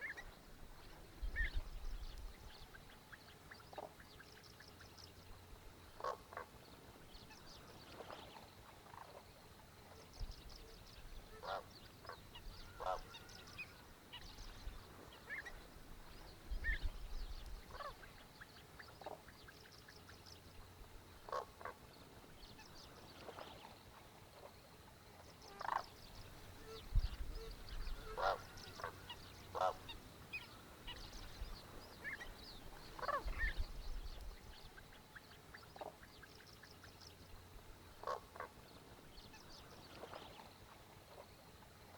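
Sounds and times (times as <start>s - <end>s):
goose-like honking calls: 11.3s - 13.6s, 27.9s - 30.0s
small birds chirping: 25.2s - 37.3s.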